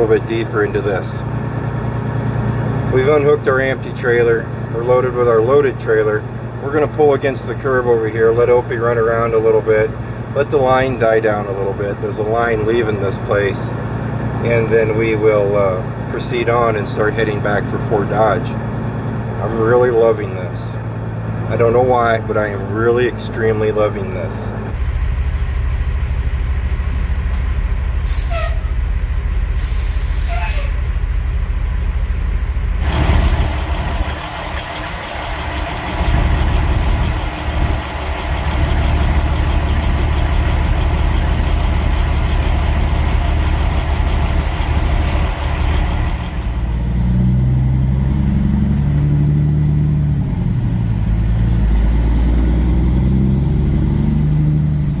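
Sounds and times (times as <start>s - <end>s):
truck diesel engine running: 0.0s - 55.0s
air brake hiss: 28.0s - 28.7s, 29.6s - 30.8s.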